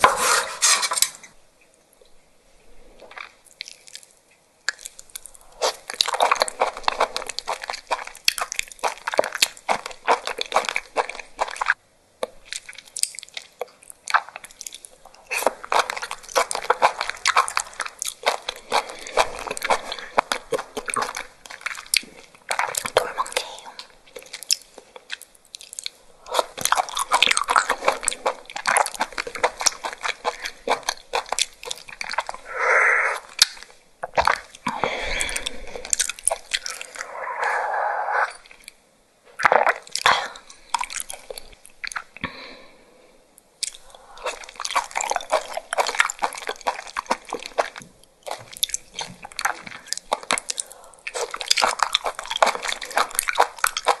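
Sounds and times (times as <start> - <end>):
chewing crunchy wet food: 3.0 - 32.6, 33.2 - 37.4, 38.0 - 38.8, 39.4 - 42.7, 43.5 - 54.0.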